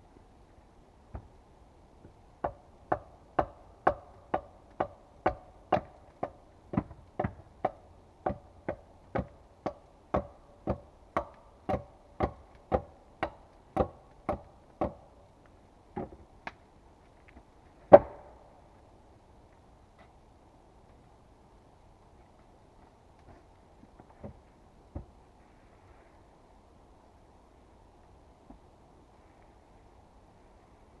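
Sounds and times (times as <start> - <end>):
tool striking wood: 2.4 - 15.0.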